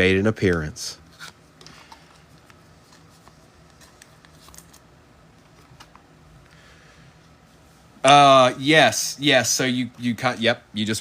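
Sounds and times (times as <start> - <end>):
low steady hum: 0.0 - 11.0
trading cards rustling: 1.1 - 6.0.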